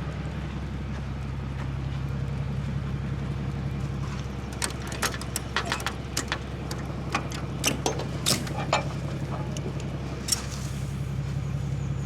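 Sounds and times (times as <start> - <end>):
truck engine running at low revs: 0.0 - 12.0
sharp clicks and ticks: 4.4 - 10.5.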